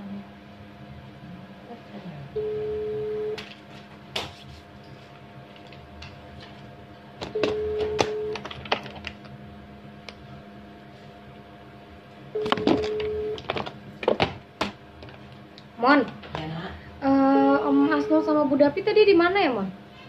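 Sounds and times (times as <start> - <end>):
telephone ringback beep: 2.4 - 3.4, 7.3 - 8.4, 12.4 - 13.4.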